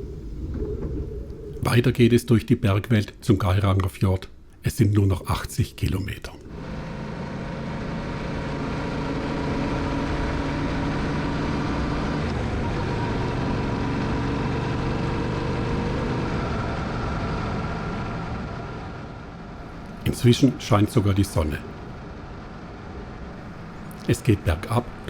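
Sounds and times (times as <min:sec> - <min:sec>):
wind noise: 0:00.0 - 0:02.6
road noise: 0:05.6 - 0:25.0.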